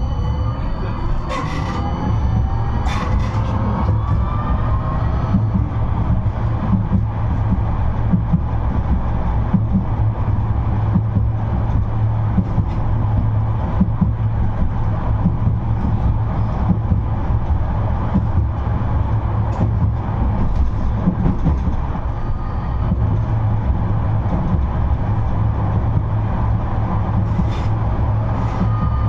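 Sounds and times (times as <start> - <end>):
tram wheels rumbling on rails: 0.0 - 29.0.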